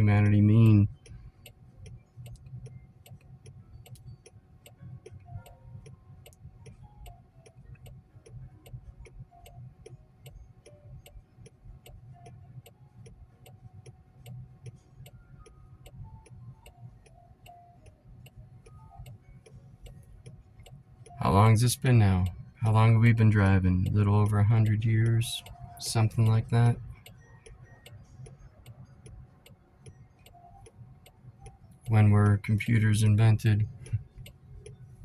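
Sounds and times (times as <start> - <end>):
low road rumble: 0.0 - 4.0, 19.8 - 35.0
soft music: 0.0 - 35.0
soft ticks: 0.0 - 35.0.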